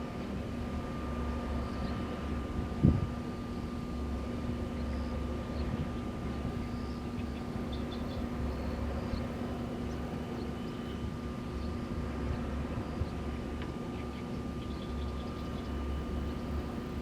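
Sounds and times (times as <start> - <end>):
wind turbines humming: 0.0 - 17.0
wind gusts: 2.0 - 10.4.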